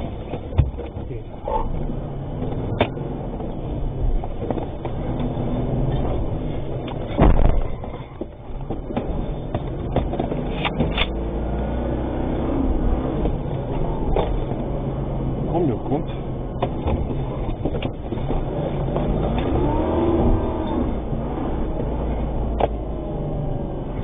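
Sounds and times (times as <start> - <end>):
vehicle engine rumbling: 0.0 - 24.0
loud thump: 7.1 - 7.8.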